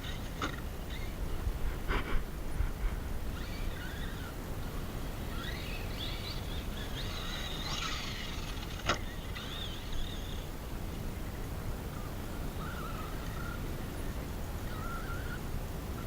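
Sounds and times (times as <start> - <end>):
rc truck motor whining: 0.0 - 10.6, 11.9 - 15.5
wind rumble: 1.1 - 3.7.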